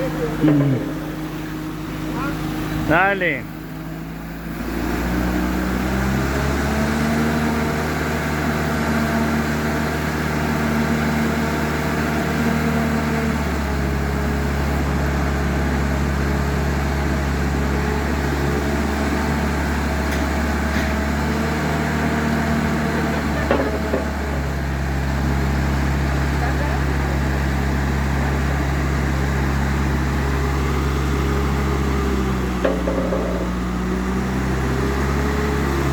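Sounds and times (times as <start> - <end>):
engine running steadily: 0.0 - 35.9
brief knock: 32.6 - 33.6.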